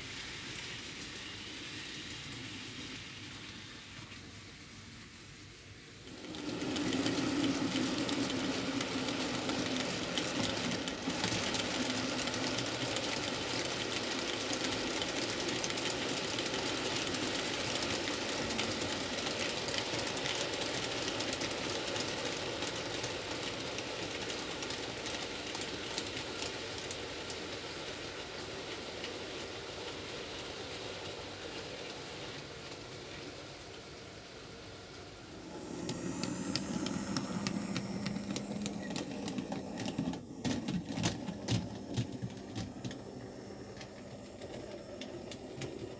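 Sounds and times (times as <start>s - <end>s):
wheels clicking on rails: 6.0s - 33.5s, 35.0s - 45.9s
model train motor whirring: 6.1s - 18.7s, 35.3s - 45.9s.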